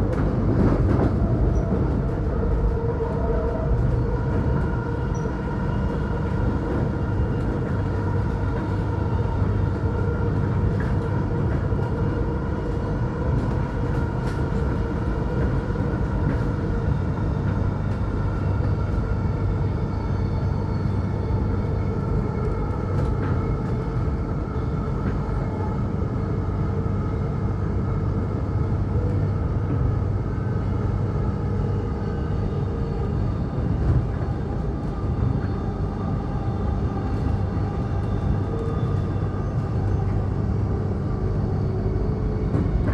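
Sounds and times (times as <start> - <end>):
train wheels rumbling on track: 0.0 - 42.9.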